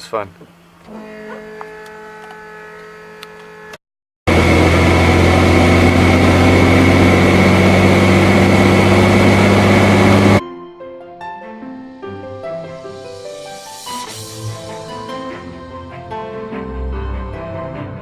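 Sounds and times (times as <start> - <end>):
helicopter engine and rotor: 4.6 - 10.4.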